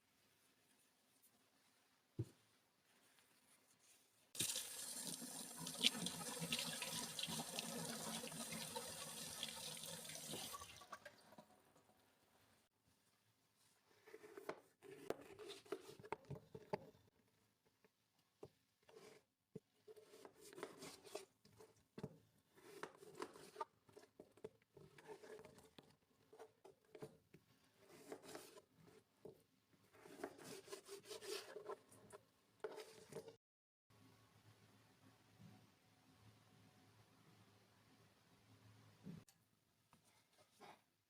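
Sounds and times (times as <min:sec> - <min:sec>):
soft rubbing and rustling: 0:00.0 - 0:04.3.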